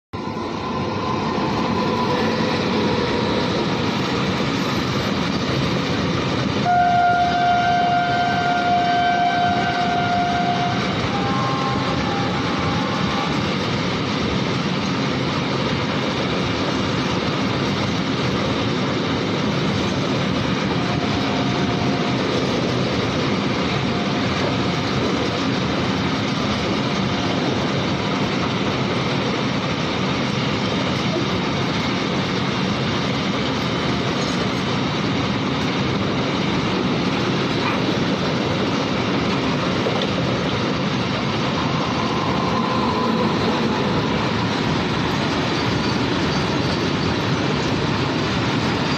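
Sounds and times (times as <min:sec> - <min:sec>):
freight train running: 0:00.0 - 0:48.9
locomotive horn: 0:06.6 - 0:13.5, 0:20.8 - 0:22.5, 0:23.8 - 0:24.9.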